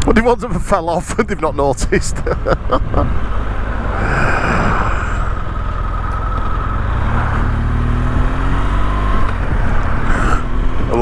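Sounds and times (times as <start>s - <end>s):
wind and road noise: 0.0s - 11.0s
motorcycle engine running: 2.3s - 11.0s.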